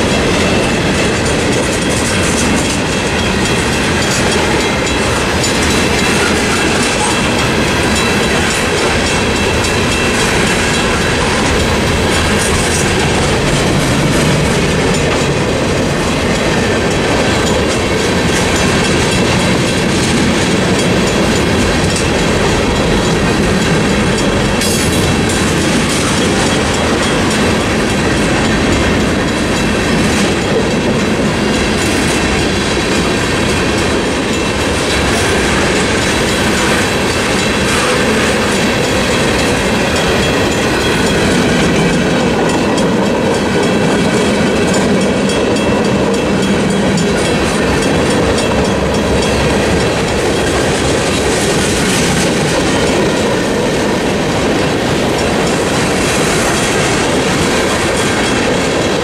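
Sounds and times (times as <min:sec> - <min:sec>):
crossing signal bell ringing: 0:00.0 - 0:59.0
freight cars rolling on rails: 0:00.0 - 0:59.0.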